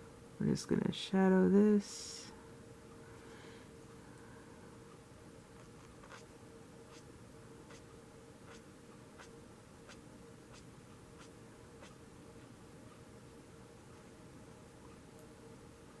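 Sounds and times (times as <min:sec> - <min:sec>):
faint steady hum: 0:00.0 - 0:16.0
marker tip rubbing on paper: 0:06.0 - 0:06.3.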